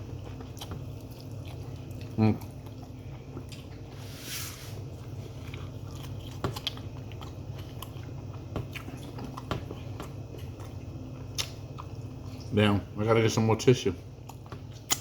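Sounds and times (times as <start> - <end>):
person chewing: 0.0 - 4.0, 4.8 - 12.6.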